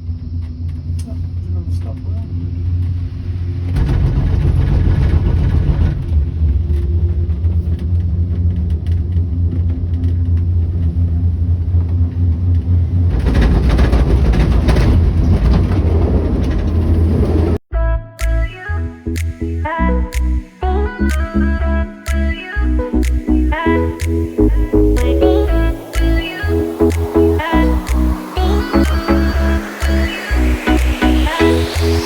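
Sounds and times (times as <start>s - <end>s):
cable car gondola rumble: 0.0s - 17.6s
low hum: 0.0s - 32.0s.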